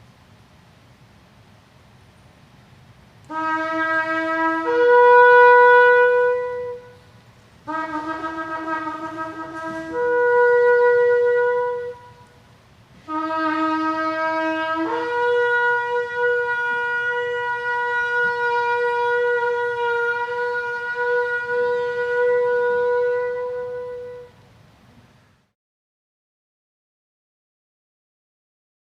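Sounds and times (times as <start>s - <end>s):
shofar blasts: 3.2s - 24.5s.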